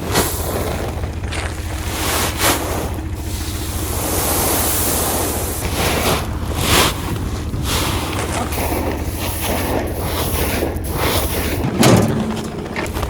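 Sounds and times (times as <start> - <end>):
tractor engine thrumming: 0.0 - 13.0
wind buffeting microphone: 5.6 - 13.0.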